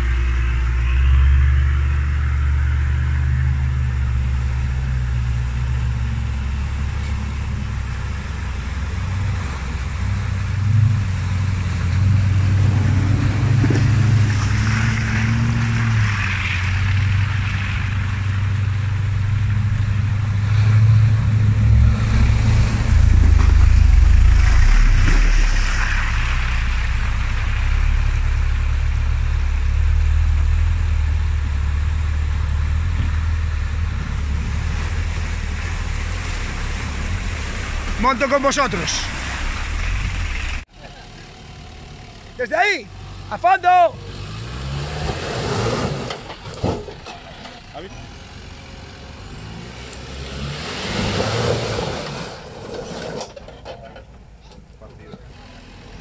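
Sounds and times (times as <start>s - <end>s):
engine revving: 8.8s - 53.3s
rushing noise: 19.2s - 40.7s.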